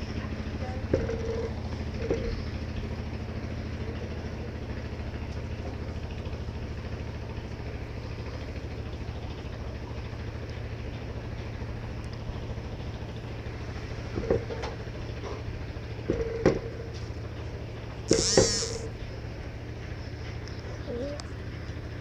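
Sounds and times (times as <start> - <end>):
small motor humming: 18.1 - 19.0.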